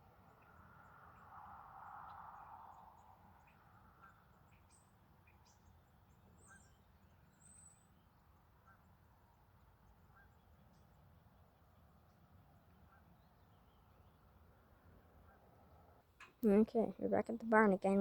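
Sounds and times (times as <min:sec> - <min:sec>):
faint bird chirps and calls: 0:00.0 - 0:16.0.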